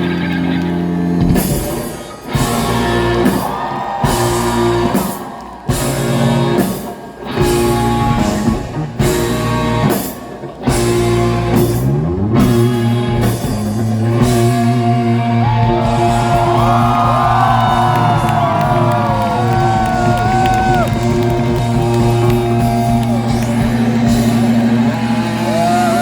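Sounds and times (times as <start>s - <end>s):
live rock band playing: 0.0s - 26.0s
bending lead guitar lines: 5.7s - 26.0s.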